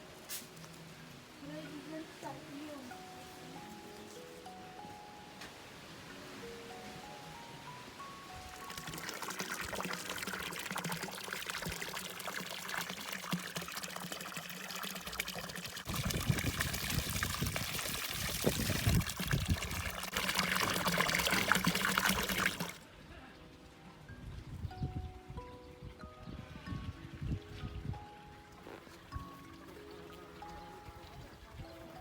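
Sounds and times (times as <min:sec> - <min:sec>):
water trickling and splashing: 0:07.7 - 0:22.9, 0:26.7 - 0:32.0.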